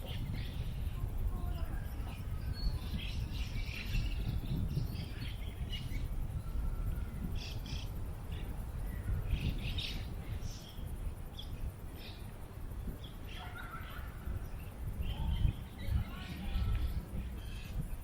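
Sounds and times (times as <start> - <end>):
small birds chirping: 0.0 - 18.0
wind on microphone: 0.0 - 18.0.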